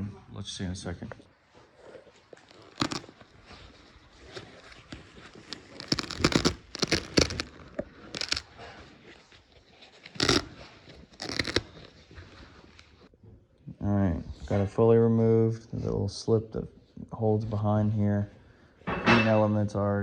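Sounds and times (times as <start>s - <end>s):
velcro tearing: 2.3s - 13.1s
upholstery being ripped off: 2.4s - 8.7s, 10.0s - 13.0s.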